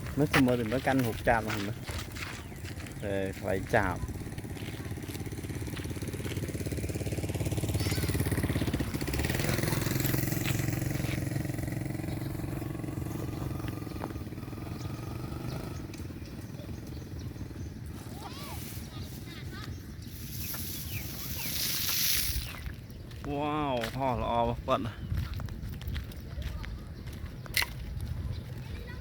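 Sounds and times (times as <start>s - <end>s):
small engine running: 0.1s - 22.7s.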